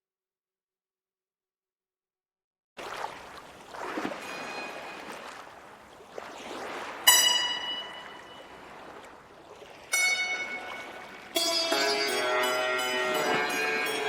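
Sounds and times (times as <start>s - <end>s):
rushing water-like noise: 2.8s - 14.0s
bright ringing note: 7.1s - 8.6s.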